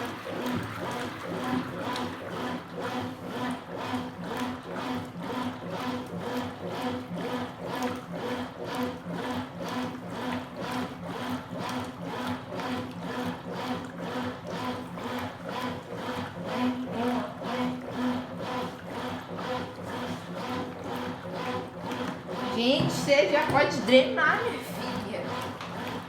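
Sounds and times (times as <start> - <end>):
washing machine agitator swinging: 0.0 - 26.0
water sloshing: 16.2 - 26.0
steady machine hum: 16.3 - 26.0.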